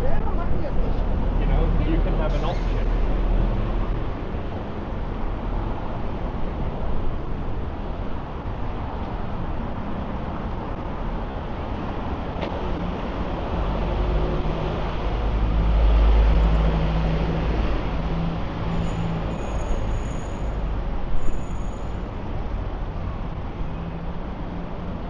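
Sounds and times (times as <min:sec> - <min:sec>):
city road traffic: 0:00.0 - 0:25.0.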